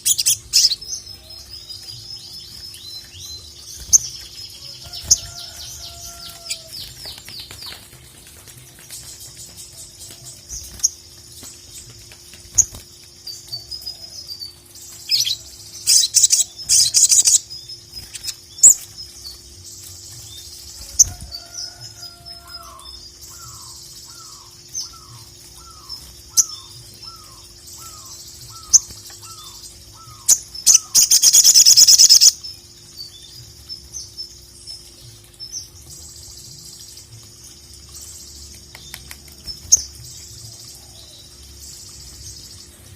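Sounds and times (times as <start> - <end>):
bird chirping and twittering: 0.0 - 42.9.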